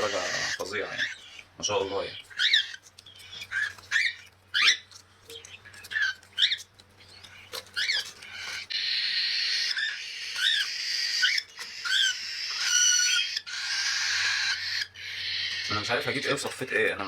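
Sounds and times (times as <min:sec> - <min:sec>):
chicks hissing begging call: 0:00.0 - 0:02.7, 0:08.2 - 0:15.9
chicks chirping: 0:00.0 - 0:17.0.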